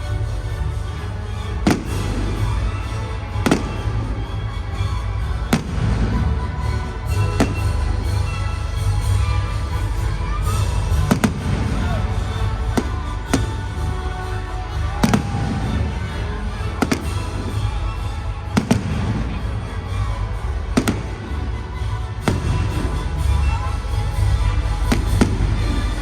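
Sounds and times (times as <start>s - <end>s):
music: 0.0s - 26.0s
fireworks bangs: 1.6s - 4.2s, 5.4s - 6.3s, 7.0s - 8.4s, 10.7s - 14.0s, 14.8s - 19.9s, 20.7s - 21.6s, 22.2s - 23.6s, 24.7s - 26.0s
fireworks crackling: 1.6s - 26.0s.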